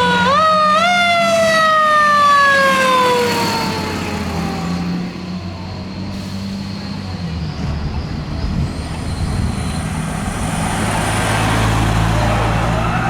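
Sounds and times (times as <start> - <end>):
siren: 0.0 - 6.1
fire truck engine running: 0.0 - 13.0
road noise: 0.0 - 13.0.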